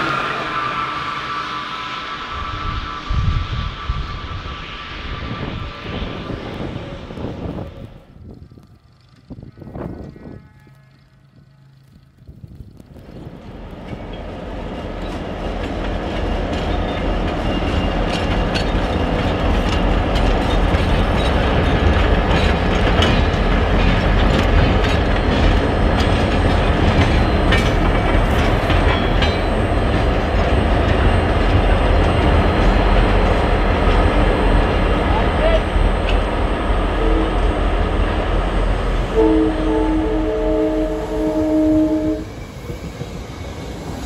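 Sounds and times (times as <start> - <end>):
train wheels rumbling on rail: 0.0 - 44.0
wheels clicking over rails: 10.8 - 36.7.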